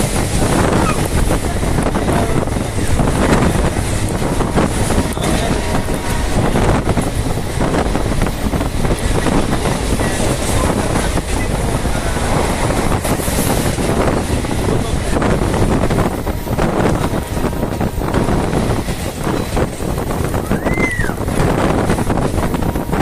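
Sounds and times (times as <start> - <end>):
passenger train running: 0.0 - 23.0.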